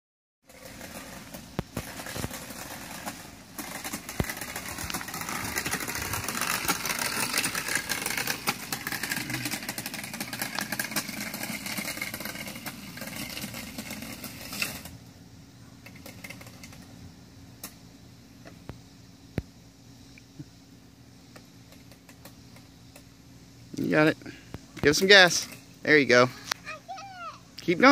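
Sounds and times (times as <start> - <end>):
electric dirt bike rattling: 0.4 - 15.1, 15.8 - 17.8, 23.8 - 26.8.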